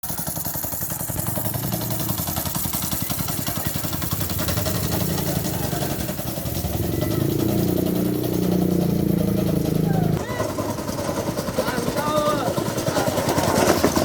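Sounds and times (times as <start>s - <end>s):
small motorcycle engine idling: 0.0s - 14.0s.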